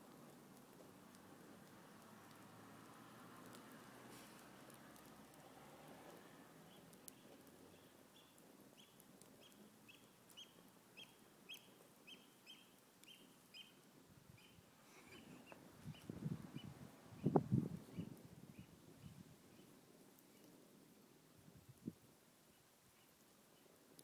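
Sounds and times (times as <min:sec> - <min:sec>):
low rustling noise: 0:00.0 - 0:09.4
bird chirping: 0:06.7 - 0:13.8, 0:14.4 - 0:19.7.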